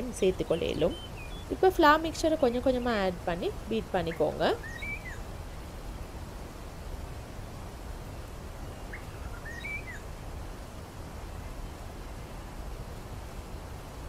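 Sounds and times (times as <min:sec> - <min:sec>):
faint bird chirps: 0:00.0 - 0:01.8, 0:04.0 - 0:05.7, 0:08.6 - 0:10.1
low background hum: 0:00.0 - 0:14.0.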